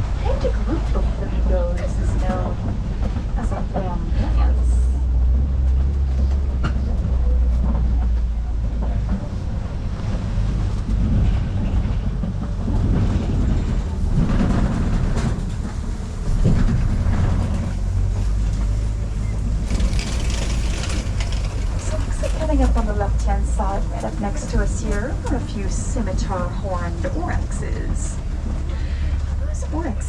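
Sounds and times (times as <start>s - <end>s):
truck engine and road rumble: 0.0s - 30.0s
knocks and rattles: 5.1s - 23.1s.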